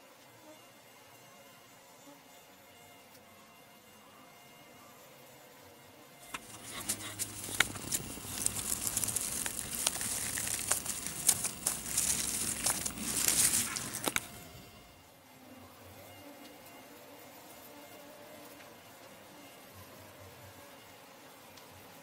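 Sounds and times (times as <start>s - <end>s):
rustling and crackling: 6.2s - 14.9s.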